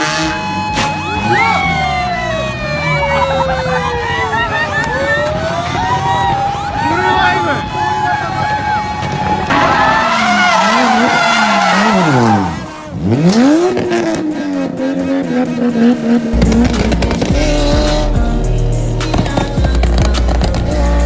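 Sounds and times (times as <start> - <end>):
car engine revving: 0.0 - 21.0
heavy bass music: 0.0 - 21.0
tyres squealing: 0.5 - 13.8.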